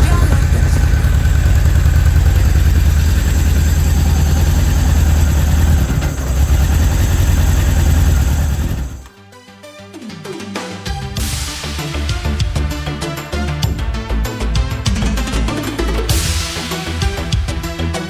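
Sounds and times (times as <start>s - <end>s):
motorcycle engine rumbling: 0.0s - 9.1s.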